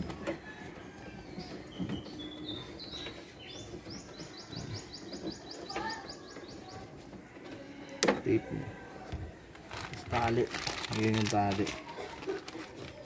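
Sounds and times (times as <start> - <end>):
small bird singing: 0.4 - 7.0
hands handling tape and wiring: 9.5 - 13.0.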